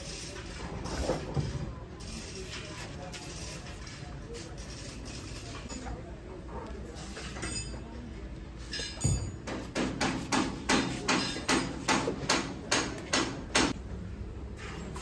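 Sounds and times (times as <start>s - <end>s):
hammer striking sheet metal: 9.0s - 13.8s.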